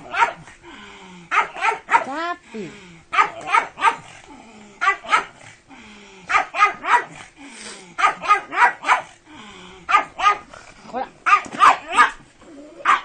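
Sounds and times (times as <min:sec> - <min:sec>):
dog barking: 0:00.0 - 0:00.5, 0:01.3 - 0:02.2, 0:03.1 - 0:04.1, 0:04.8 - 0:05.4, 0:06.3 - 0:07.2, 0:08.0 - 0:09.1, 0:09.9 - 0:10.5, 0:11.2 - 0:12.2.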